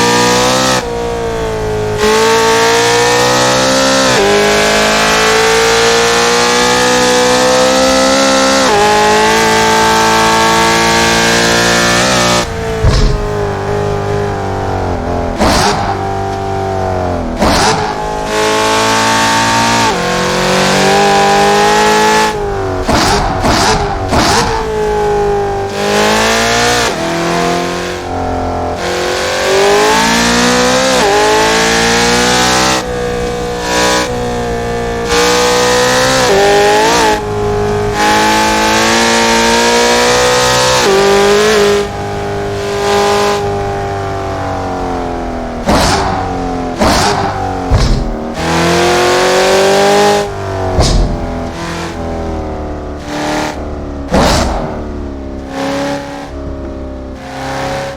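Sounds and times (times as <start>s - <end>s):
car engine revving through gears: 0.0s - 57.9s
sharp cracks at gear shifts: 11.2s - 20.1s, 21.7s - 24.9s, 45.5s - 52.1s, 53.0s - 55.6s.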